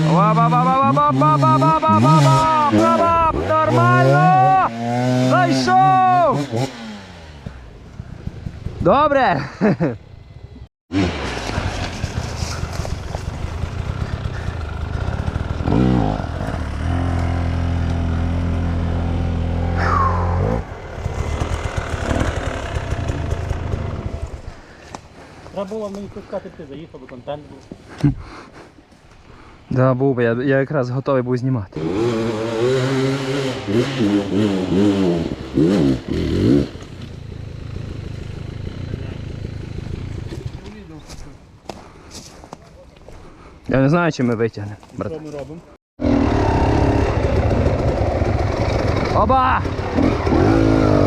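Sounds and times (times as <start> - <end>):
motorcycle engine revving: 0.0 - 9.1, 10.2 - 24.5, 31.8 - 40.8, 46.0 - 51.0.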